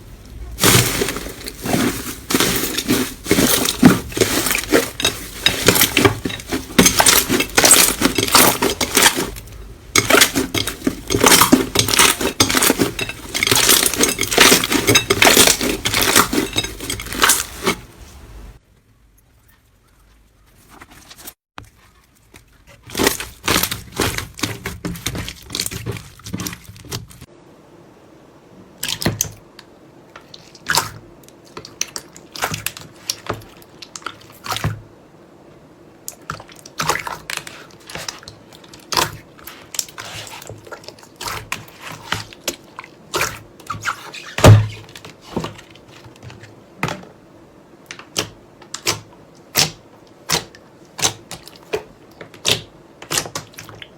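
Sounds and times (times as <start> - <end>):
faint steady hum: 24.9 - 53.9.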